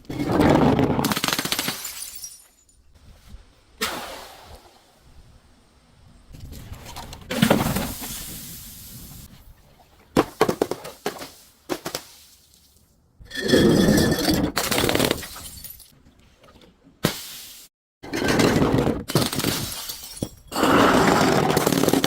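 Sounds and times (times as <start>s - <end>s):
glass bottles smashing: 1.4s - 2.8s, 13.6s - 15.9s, 19.1s - 22.0s
glass pieces tinkling: 1.8s - 2.9s.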